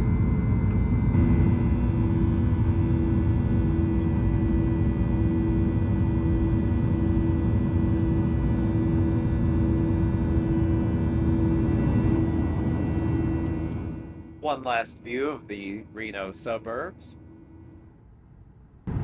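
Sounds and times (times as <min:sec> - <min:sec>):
airplane cabin engine roar: 0:00.0 - 0:19.0
steady hum: 0:00.0 - 0:19.0.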